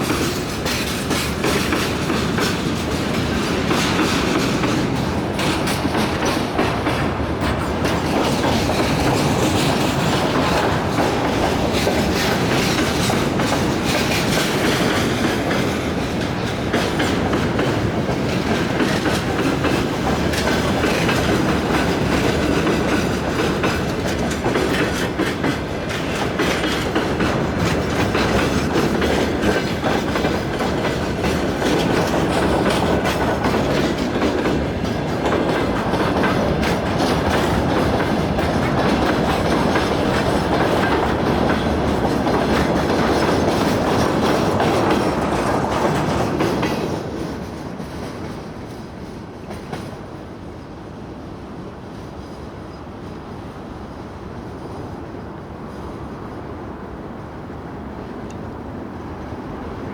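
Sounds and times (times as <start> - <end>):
train wheels clattering on rails: 0.0 - 59.9.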